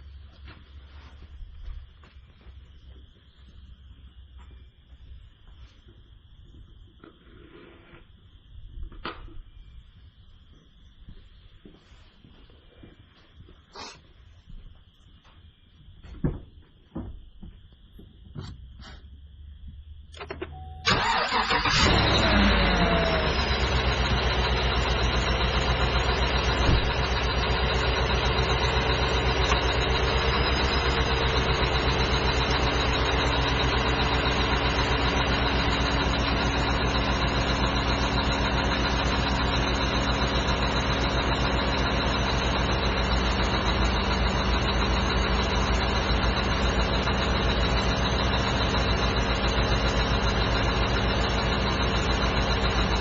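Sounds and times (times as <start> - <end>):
car engine idling: 19.3 - 53.0.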